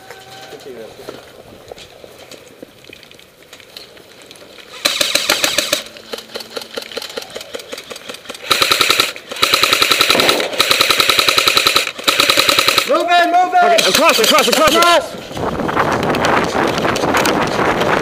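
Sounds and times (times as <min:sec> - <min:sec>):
airsoft guns firing bursts: 0:04.7 - 0:15.0.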